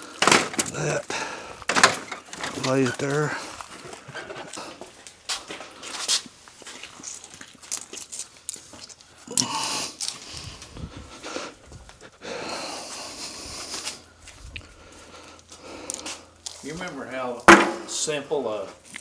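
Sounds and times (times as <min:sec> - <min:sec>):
rustling of parts: 0:00.0 - 0:04.8, 0:05.4 - 0:10.8, 0:15.4 - 0:18.1
parts scraping: 0:06.9 - 0:10.6, 0:15.8 - 0:18.1
parts knocking: 0:07.0 - 0:10.2, 0:15.9 - 0:18.1.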